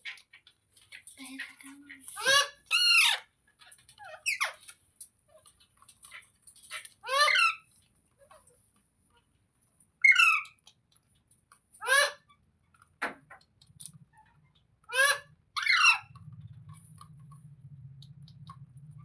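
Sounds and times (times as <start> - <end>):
parrot screeching: 2.2 - 3.3, 6.7 - 7.6, 10.0 - 10.6, 11.8 - 12.3, 14.9 - 16.1.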